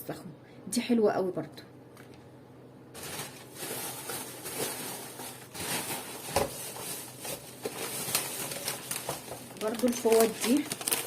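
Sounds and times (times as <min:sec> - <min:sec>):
plastic packaging crinkling: 0:02.9 - 0:11.0.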